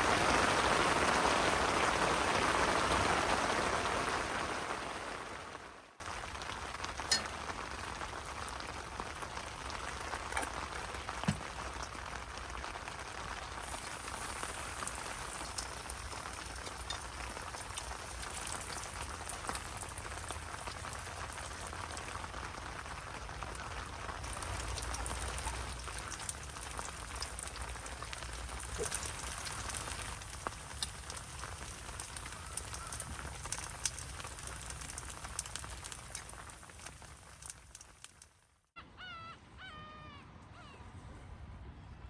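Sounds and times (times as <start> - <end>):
rain pattering: 0.0 - 38.4
rain drop ticks: 6.0 - 38.4.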